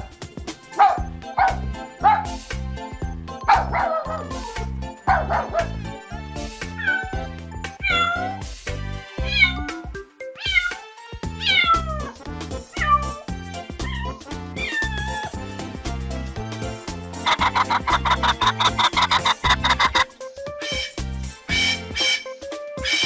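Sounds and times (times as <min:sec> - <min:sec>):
background music with steady beat: 0:00.0 - 0:23.0
cat meowing: 0:06.8 - 0:07.2, 0:07.8 - 0:08.4, 0:09.2 - 0:09.8, 0:10.4 - 0:10.8, 0:11.4 - 0:15.4.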